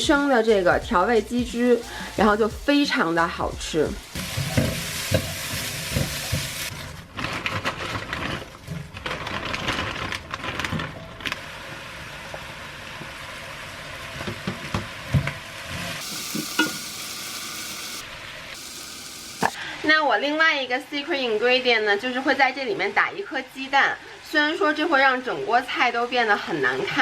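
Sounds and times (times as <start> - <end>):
noodles sizzling in a pan: 1.5 - 6.8, 11.2 - 19.7.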